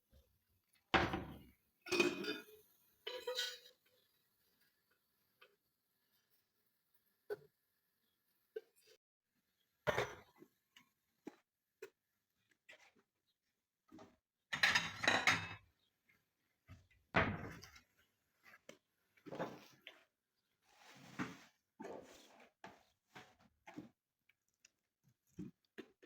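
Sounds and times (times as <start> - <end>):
objects knocking and clattering: 1.0 - 2.4, 14.0 - 15.7, 16.7 - 17.9.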